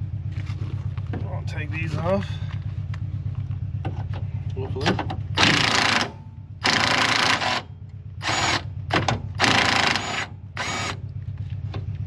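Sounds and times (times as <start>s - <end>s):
steady low hum: 0.0s - 12.0s
power tool bursts: 5.4s - 7.6s, 9.4s - 11.0s.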